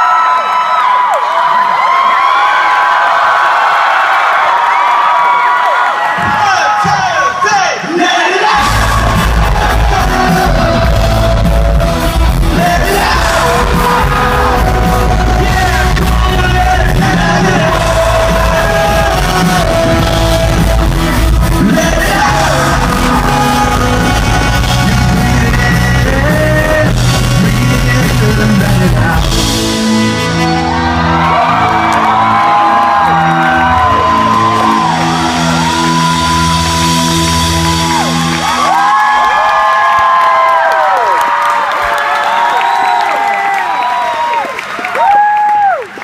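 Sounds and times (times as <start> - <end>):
voices singing and yelling: 6.2 - 29.4
live rock band playing: 8.4 - 39.1.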